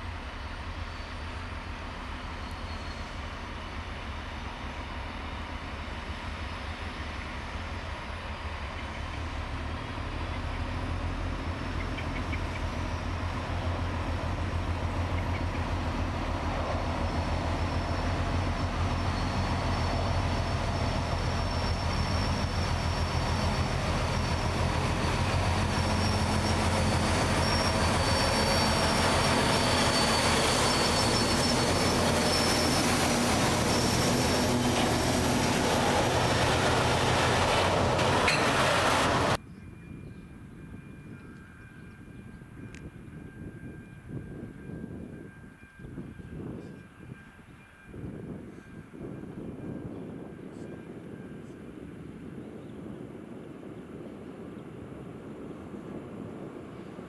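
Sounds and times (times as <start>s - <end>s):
diesel locomotive engine drone: 0.0s - 46.6s
train wheels squealing: 0.4s - 1.6s, 2.2s - 3.7s, 11.7s - 14.1s, 16.5s - 49.1s.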